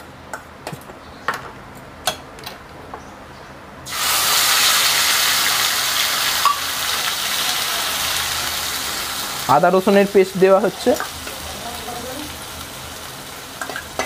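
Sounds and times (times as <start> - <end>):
paste sizzling in hot oil: 3.9 - 14.0.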